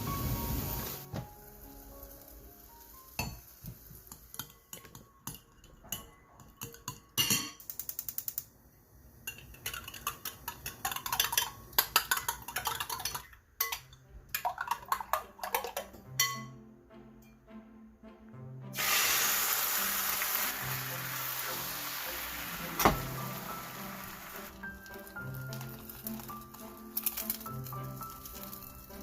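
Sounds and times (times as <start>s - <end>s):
utensils clinking against dishes: 4.1s - 8.0s, 9.3s - 16.6s, 24.7s - 29.0s.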